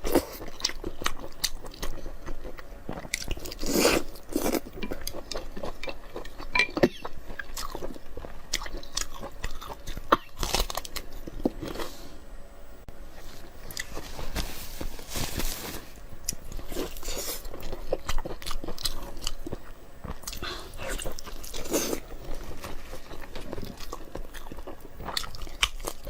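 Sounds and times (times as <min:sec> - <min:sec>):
person biting and chewing food: 0:00.2 - 0:11.9, 0:13.5 - 0:14.4.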